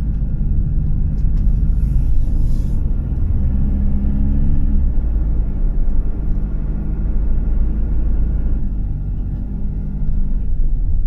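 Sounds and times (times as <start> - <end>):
car interior road rumble: 0.0 - 11.0
low engine hum: 0.0 - 11.0.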